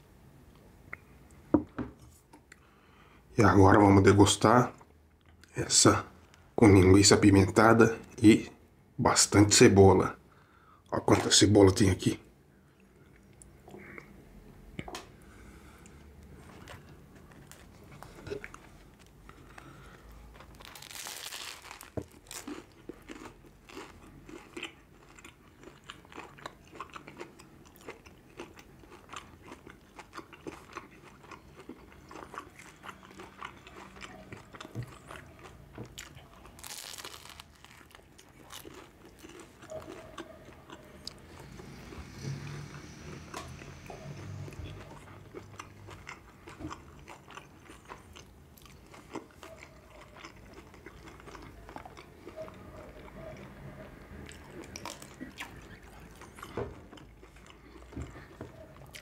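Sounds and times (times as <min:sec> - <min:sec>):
chewing with wet clicks: 0:12.8 - 0:14.2, 0:22.4 - 0:36.6, 0:37.6 - 0:59.0
biting bread roll: 0:20.4 - 0:42.6.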